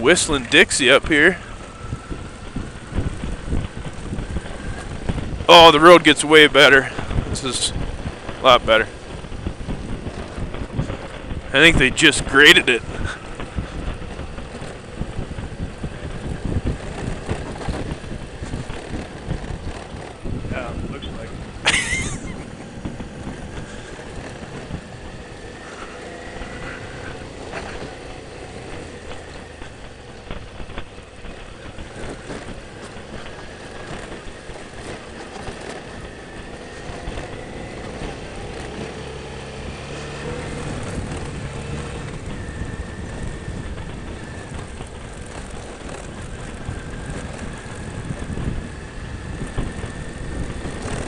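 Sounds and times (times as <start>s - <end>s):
motorcycle running: 0.0s - 51.0s
wind noise on microphone: 0.0s - 51.0s.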